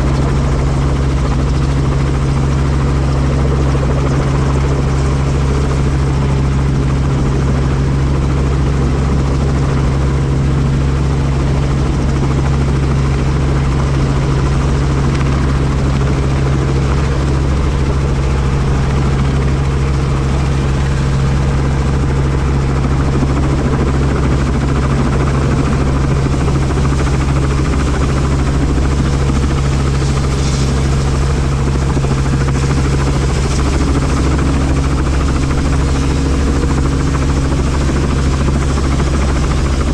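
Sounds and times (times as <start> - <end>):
helicopter engine and rotor drone: 0.0 - 39.9
rushing noise: 27.9 - 36.2.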